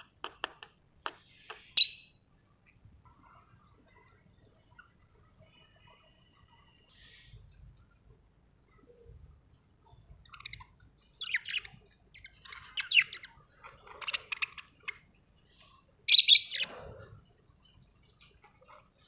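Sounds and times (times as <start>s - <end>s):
parrot chirping and warbling: 1.7s - 2.2s, 10.2s - 15.1s, 16.1s - 16.8s.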